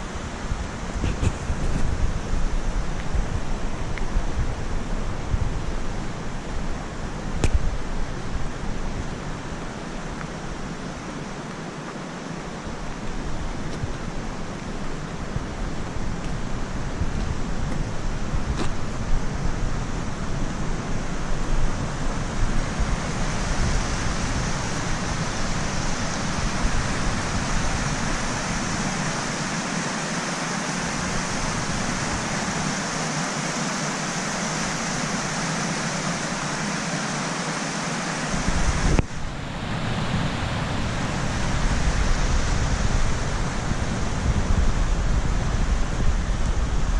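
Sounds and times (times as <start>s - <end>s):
waterfall rushing: 19.0s - 46.8s.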